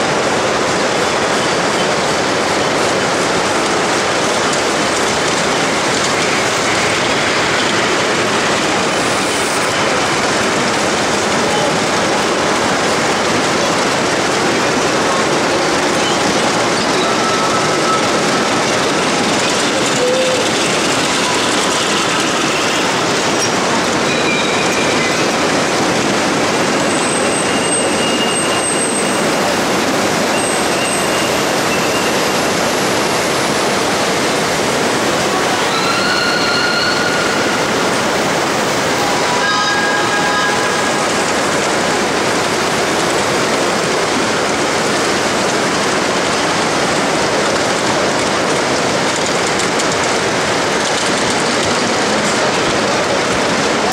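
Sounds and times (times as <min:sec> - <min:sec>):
model steam trains running: 0:00.0 - 0:53.9
brief high-pitched tones: 0:35.4 - 0:37.9, 0:39.0 - 0:41.4.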